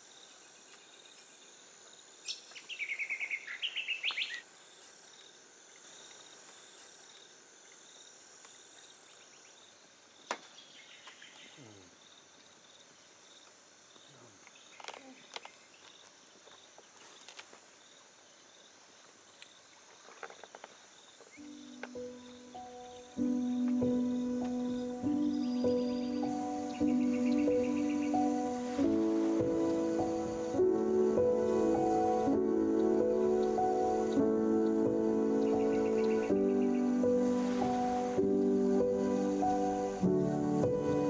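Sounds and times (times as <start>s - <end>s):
insects chirring: 0.0s - 41.0s
bird chirping calls: 2.2s - 4.5s, 21.2s - 41.0s.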